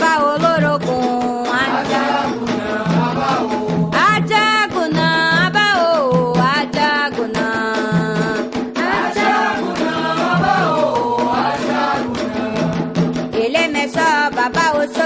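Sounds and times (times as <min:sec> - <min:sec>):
hand drums beating: 0:00.0 - 0:15.0
voices chanting: 0:01.6 - 0:03.7, 0:08.8 - 0:12.9.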